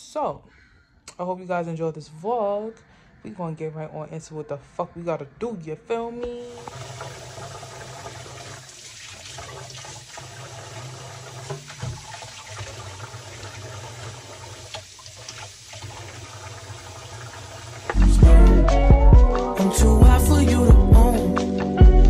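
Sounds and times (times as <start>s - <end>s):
water running from tap: 6.4s - 18.0s.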